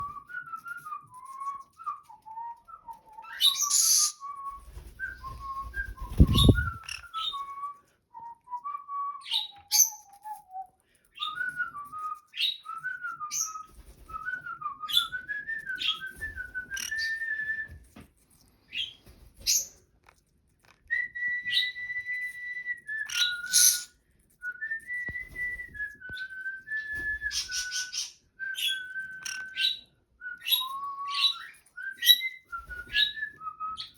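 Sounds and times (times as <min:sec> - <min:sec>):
parrot whistling a tune: 0:00.0 - 0:17.8, 0:20.8 - 0:33.9
short sharp bird chirps: 0:03.6 - 0:04.2, 0:23.1 - 0:23.9.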